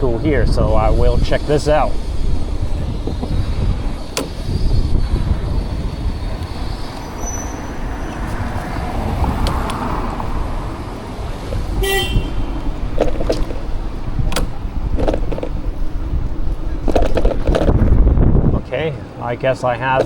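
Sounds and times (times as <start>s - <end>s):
wind rumbling on microphone: 0.0s - 19.2s
street traffic: 0.0s - 20.0s
vehicle horn toot: 11.8s - 12.6s.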